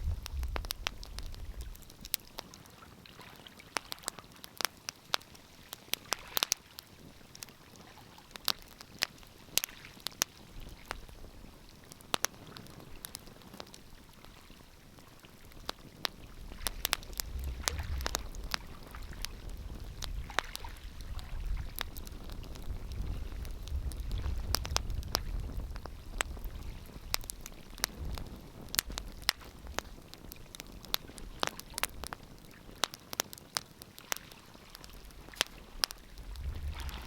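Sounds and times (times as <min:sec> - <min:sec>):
wood fire crackling: 0:00.0 - 0:37.0
low rumble: 0:17.1 - 0:20.2, 0:35.1 - 0:37.0.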